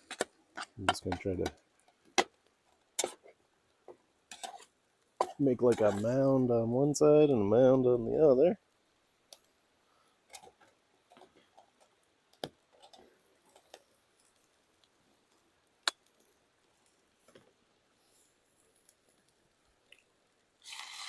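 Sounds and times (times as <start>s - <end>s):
utensil tapping frying pan: 0.0s - 2.3s.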